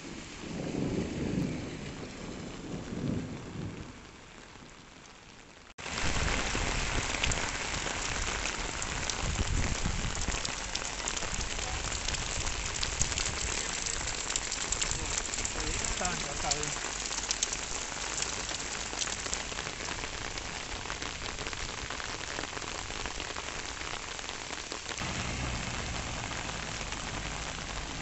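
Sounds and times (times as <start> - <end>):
thunder rumbling: 0.0 - 4.7, 25.0 - 28.0
heavy rain on paved street: 0.0 - 28.0.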